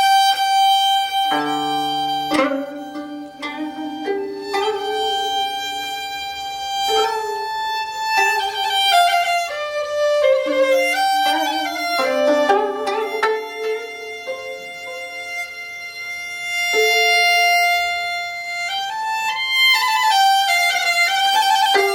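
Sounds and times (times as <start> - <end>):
plucked zither strings: 0.0 - 21.9
bowed string sliding notes: 1.2 - 18.4, 21.6 - 21.9.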